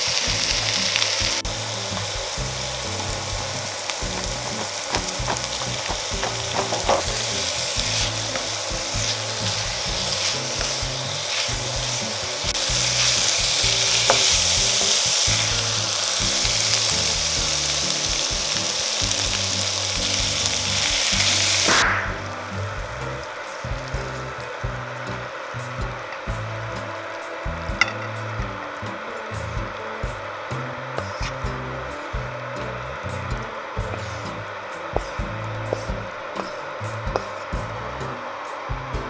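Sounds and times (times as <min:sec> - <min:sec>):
food sizzling in a wok: 0:00.0 - 0:39.0
wooden spatula scraping a wok: 0:01.8 - 0:17.1.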